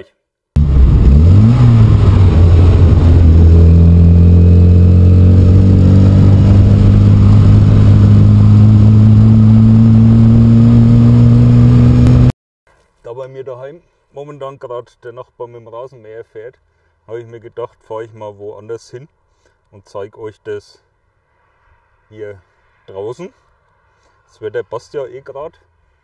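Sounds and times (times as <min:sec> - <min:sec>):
car engine starting and revving: 0:00.6 - 0:12.3.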